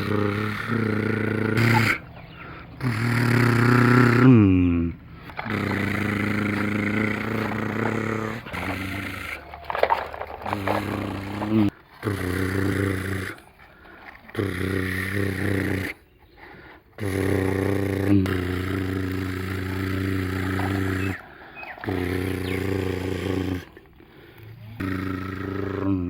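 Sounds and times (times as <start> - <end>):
tractor engine running: 0.0 - 15.7.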